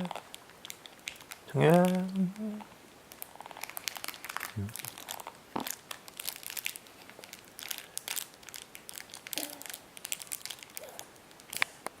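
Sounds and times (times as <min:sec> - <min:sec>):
snack packaging crinkling: 0:00.0 - 0:11.9.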